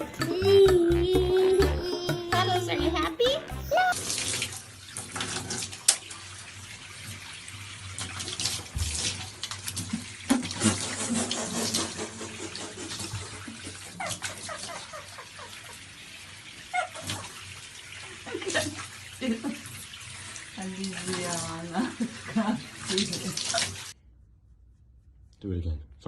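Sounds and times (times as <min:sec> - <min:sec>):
water running and splashing: 0:03.2 - 0:24.0.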